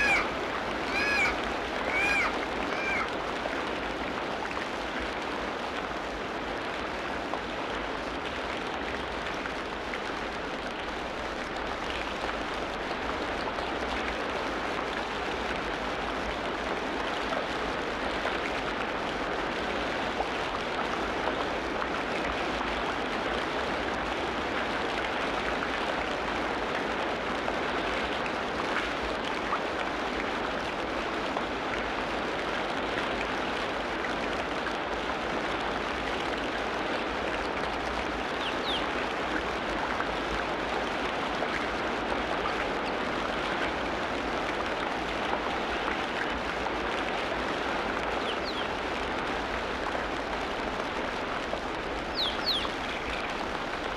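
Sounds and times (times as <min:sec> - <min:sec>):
faint bird chirps: 0:38.4 - 0:38.8, 0:48.2 - 0:48.7, 0:52.2 - 0:53.3.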